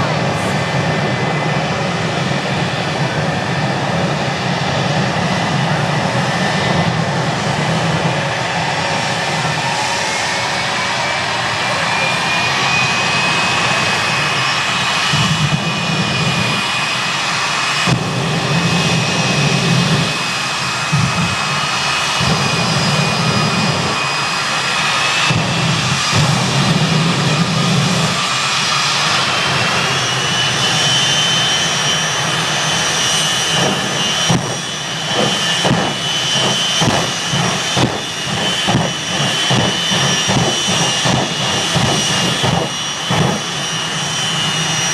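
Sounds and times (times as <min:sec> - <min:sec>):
jet engine turbine whine: 0:00.0 - 0:44.9.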